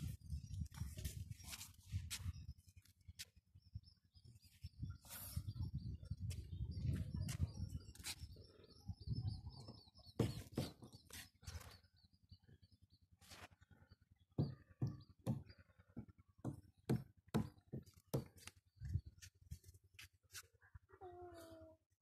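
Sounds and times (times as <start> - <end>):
wind rumble on microphone: 0.0 - 10.8, 18.8 - 19.2
small birds chirping: 0.0 - 21.8.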